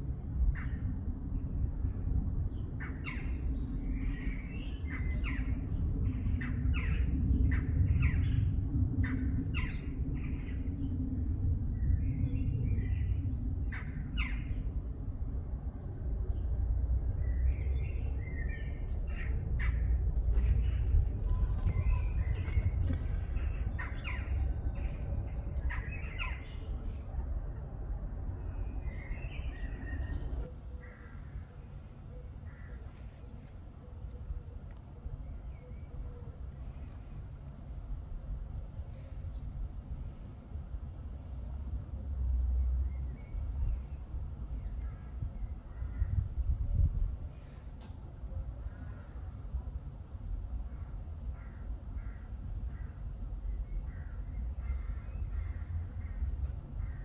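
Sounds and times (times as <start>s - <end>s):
low rumble: 0.0s - 30.7s
steady low hum: 0.0s - 57.0s
small birds chirping: 17.3s - 27.1s.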